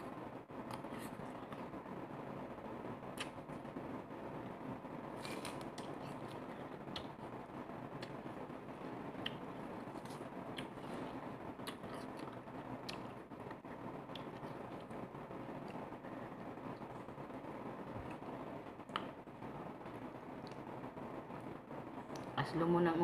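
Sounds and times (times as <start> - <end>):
steady low hiss: 0.0 - 23.0
wet mouth clicks and smacks: 3.2 - 3.4
person chewing: 5.2 - 7.3, 9.2 - 15.0.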